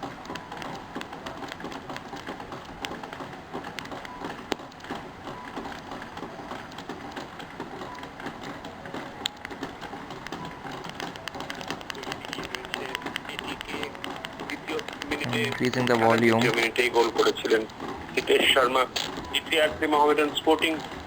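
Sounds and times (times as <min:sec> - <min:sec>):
static clicks: 0:00.0 - 0:21.0
radio static hiss: 0:12.0 - 0:21.0.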